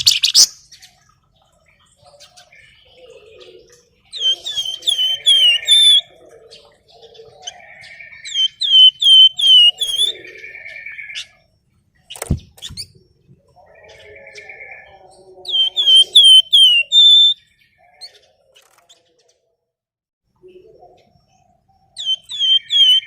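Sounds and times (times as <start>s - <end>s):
bird buzzy trills and warbling: 2.2s - 11.4s, 12.0s - 17.4s, 22.0s - 23.0s
songbird whistling runs: 4.2s - 6.0s, 8.3s - 10.2s, 15.5s - 17.4s, 22.0s - 23.0s
short thump: 12.2s - 12.9s.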